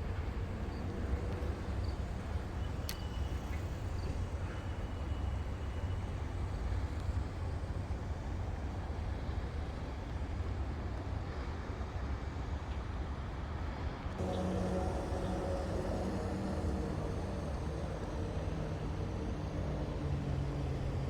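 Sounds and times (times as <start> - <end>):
highway traffic rumble: 14.2 - 21.0.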